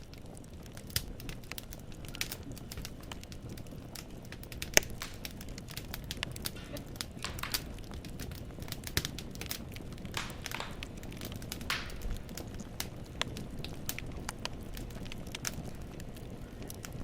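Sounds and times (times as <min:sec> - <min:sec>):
fire low rumble: 0:00.0 - 0:17.0
firewood crackling and popping: 0:00.0 - 0:17.0.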